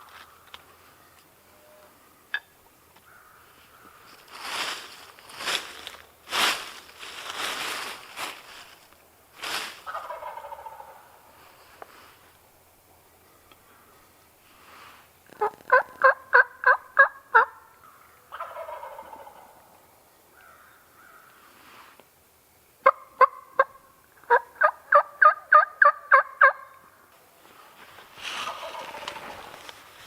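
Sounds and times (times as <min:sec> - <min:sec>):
turkey yelping: 0:09.9 - 0:11.0, 0:15.4 - 0:17.6, 0:18.3 - 0:19.6, 0:22.8 - 0:26.8, 0:28.4 - 0:29.5.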